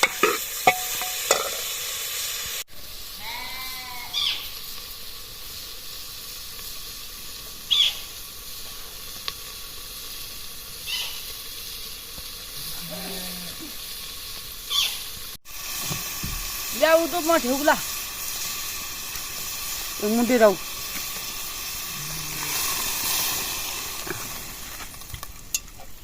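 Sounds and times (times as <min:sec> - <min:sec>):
utensil scraping pan: 0:00.0 - 0:01.8
food sizzling in hot oil: 0:00.0 - 0:26.0.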